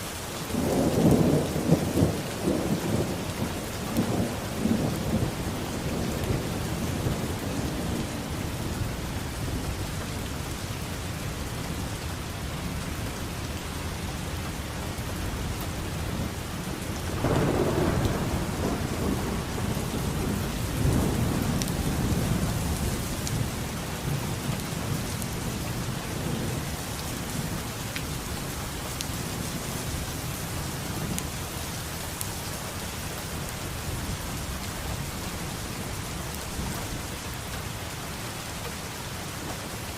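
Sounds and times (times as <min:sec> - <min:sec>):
steady rain: 0:00.0 - 0:39.9
thunder rumbling: 0:00.5 - 0:10.6, 0:15.4 - 0:31.3.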